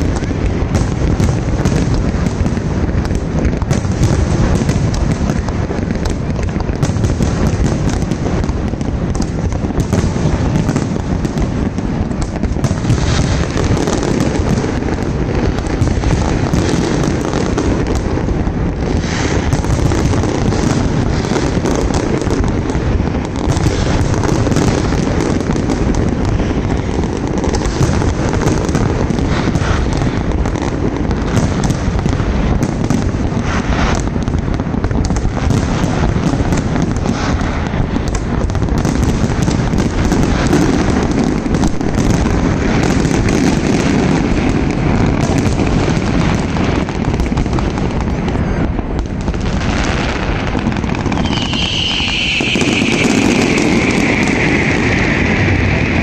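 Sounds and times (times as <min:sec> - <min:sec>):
fireworks rumbling bursts: 0:00.0 - 0:56.0
sharp firework cracks: 0:00.0 - 0:56.0.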